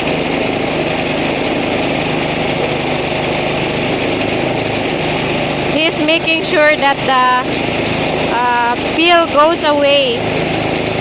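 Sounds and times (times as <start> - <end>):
rice thresher engine droning: 0.0 - 11.0.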